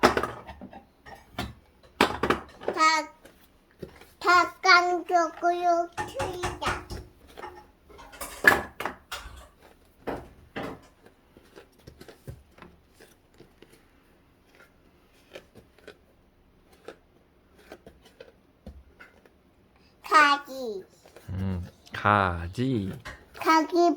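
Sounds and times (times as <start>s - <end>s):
toy dishes clattering on wood: 0.0s - 2.9s, 5.8s - 11.1s.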